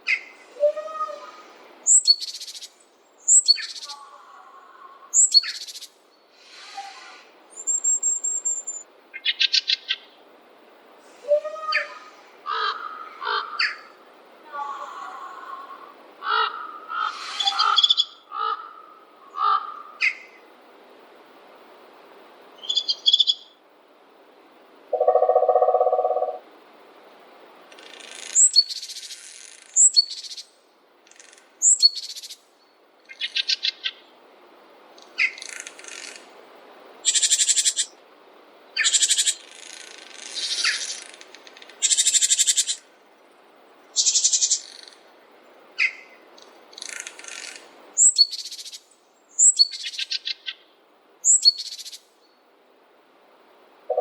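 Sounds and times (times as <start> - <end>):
high trilled bird phrases: 25.0 - 26.4.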